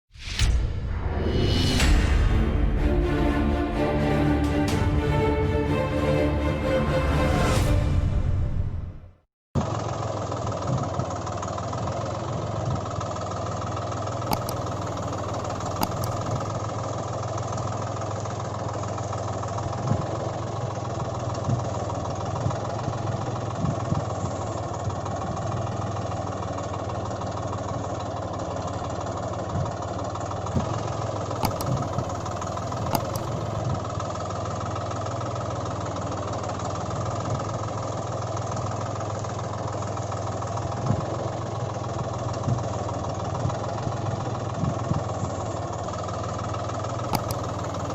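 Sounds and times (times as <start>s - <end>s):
engine idling: 9.6s - 47.9s.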